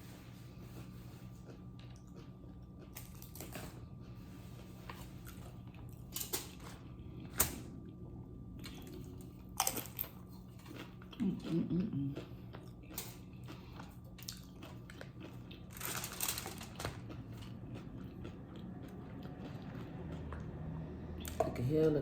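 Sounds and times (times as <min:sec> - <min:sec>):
chewing and wet mouth sounds: 0:00.5 - 0:22.0.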